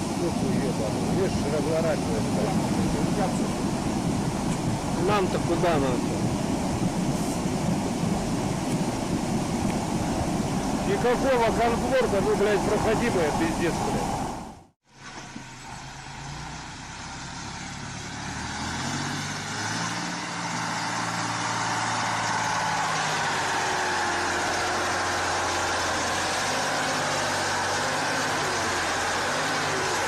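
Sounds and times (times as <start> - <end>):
truck engine humming: 0.0 - 14.7, 15.4 - 30.0
wide rushing noise: 0.0 - 14.7.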